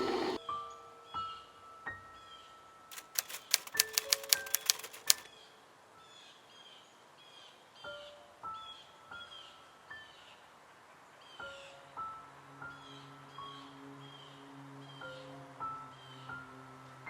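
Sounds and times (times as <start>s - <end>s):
sharp clicks or claps: 2.9s - 5.3s.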